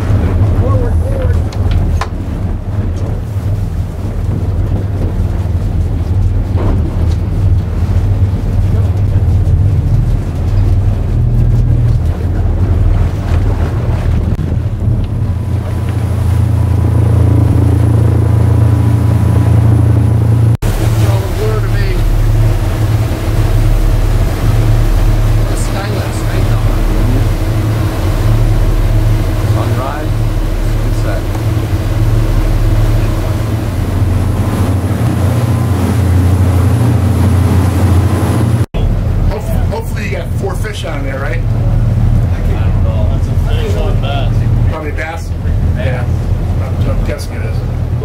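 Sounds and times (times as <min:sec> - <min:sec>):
motorboat engine drone: 0:00.0 - 0:48.0
rushing water noise: 0:00.0 - 0:48.0.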